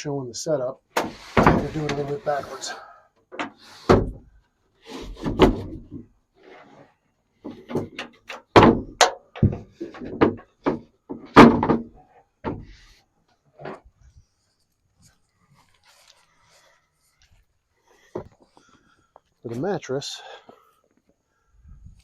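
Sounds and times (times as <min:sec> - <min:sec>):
wooden knocks and thuds: 0:01.0 - 0:02.0, 0:03.3 - 0:04.3, 0:05.1 - 0:06.1, 0:07.4 - 0:13.0, 0:18.1 - 0:18.5
wood scraping: 0:01.0 - 0:19.2.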